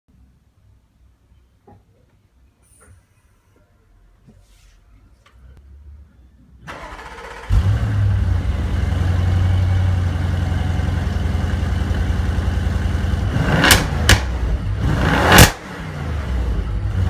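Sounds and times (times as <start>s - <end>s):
car engine starting and idling: 6.6s - 17.0s
engine rev blip: 13.2s - 16.2s.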